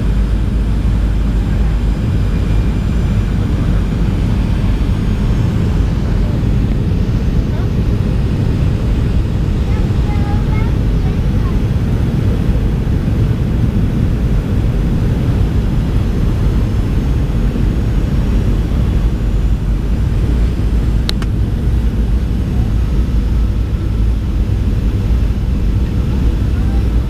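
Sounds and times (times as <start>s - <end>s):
airplane engine and airflow rumble: 0.0s - 27.0s
sharp click: 21.1s - 21.4s.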